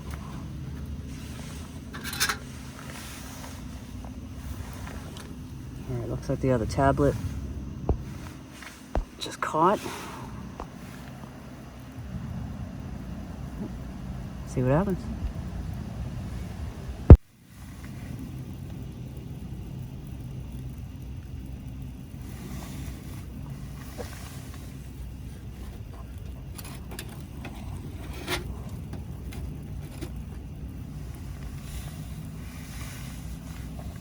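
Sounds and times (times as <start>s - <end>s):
wind buffeting microphone: 10.4s - 17.2s.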